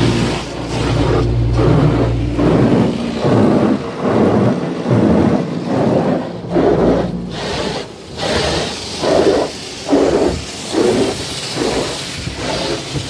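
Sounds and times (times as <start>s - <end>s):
low motor hum: 0.0s - 12.5s
car wash rushing and rumbling: 0.0s - 13.0s.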